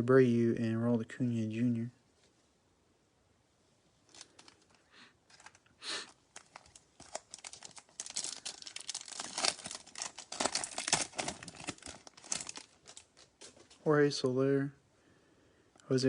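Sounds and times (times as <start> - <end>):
foil wrapper crinkling: 4.1 - 13.8.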